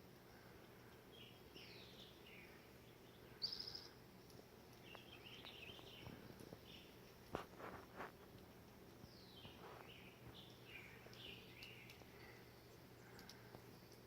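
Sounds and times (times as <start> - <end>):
small birds chirping: 0.0 - 14.0
high bird trill: 3.3 - 4.0.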